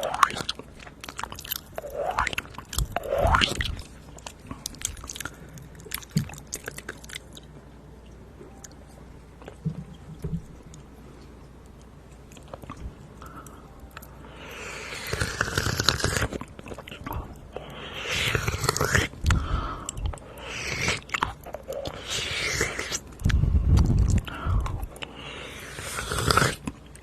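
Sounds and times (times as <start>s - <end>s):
wet mouth clicks and smacks: 0.2s - 7.5s, 22.6s - 25.1s.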